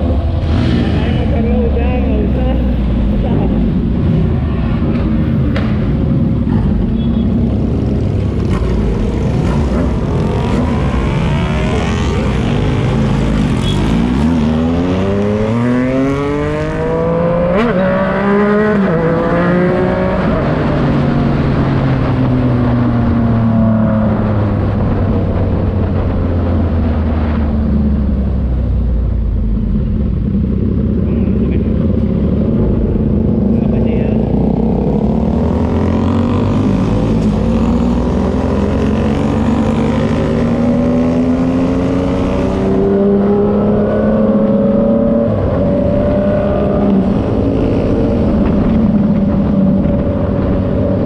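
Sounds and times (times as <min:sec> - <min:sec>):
motorcycle engine revving loud: 0:00.0 - 0:02.4, 0:06.8 - 0:22.4, 0:30.2 - 0:51.0.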